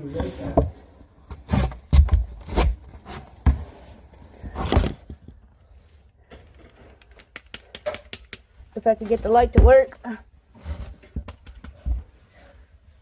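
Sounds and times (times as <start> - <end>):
knocks and scrapes on wood: 0.1 - 5.5.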